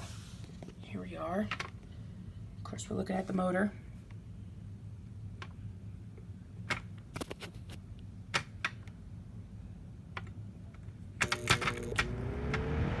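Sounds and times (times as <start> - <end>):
box fan being handled clicks: 11.2 - 12.6
fan motor hum: 11.2 - 13.0.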